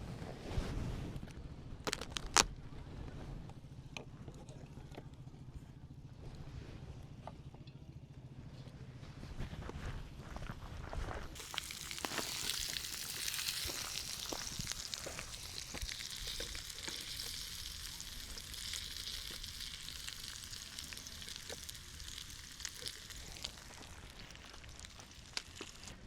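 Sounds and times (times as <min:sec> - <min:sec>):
food sizzling in a pan: 0:11.4 - 0:26.0.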